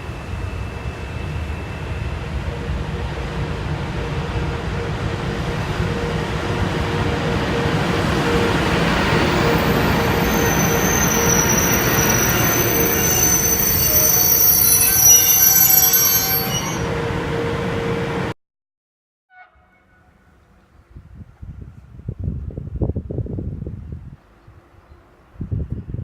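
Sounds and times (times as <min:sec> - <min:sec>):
wheels squealing on rails: 0:00.0 - 0:18.3
train rumbling past: 0:00.0 - 0:18.4.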